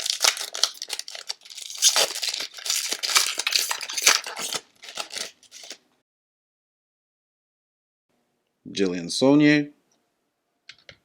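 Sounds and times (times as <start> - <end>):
wrapper torn open and crinkled: 0.0 - 5.8.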